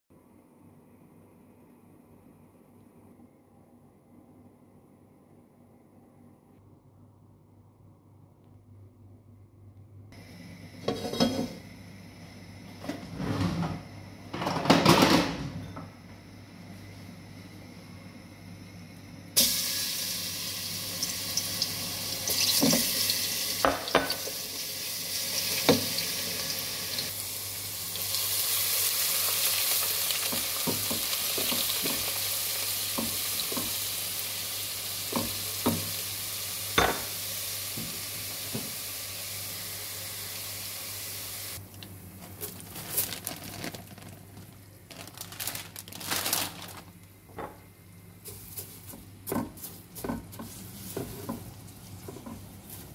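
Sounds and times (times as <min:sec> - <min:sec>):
oil sizzling in a pot: 0:19.4 - 0:41.6.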